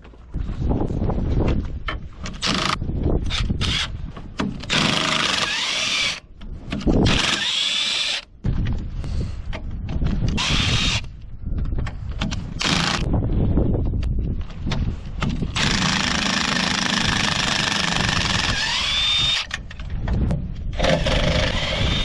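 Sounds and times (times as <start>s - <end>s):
wind buffeting microphone: 0.2s - 5.7s, 6.3s - 7.5s, 8.3s - 22.0s
power tool motor whine: 15.6s - 19.5s, 20.8s - 22.0s.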